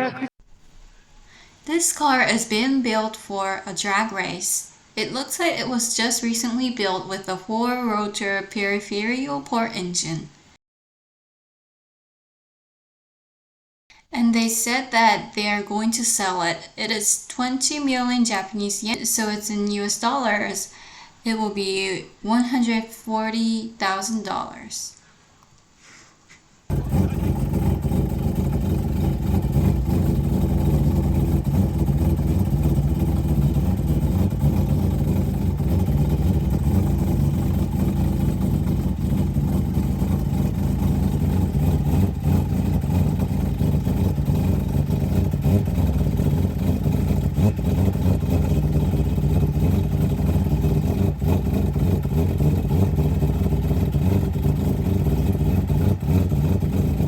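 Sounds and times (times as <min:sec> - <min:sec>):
rotary engine running: 0:26.7 - 0:57.0.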